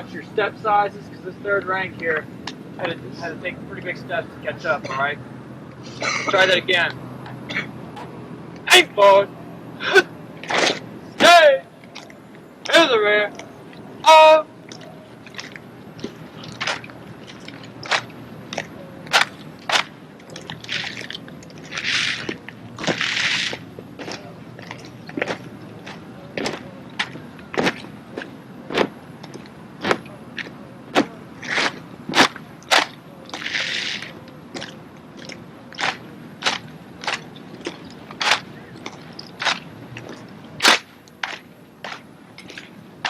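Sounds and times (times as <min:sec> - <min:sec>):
feet stamping: 0:10.4 - 0:43.0
rifles slapping against hands: 0:17.8 - 0:19.9, 0:38.2 - 0:38.5, 0:40.6 - 0:42.6.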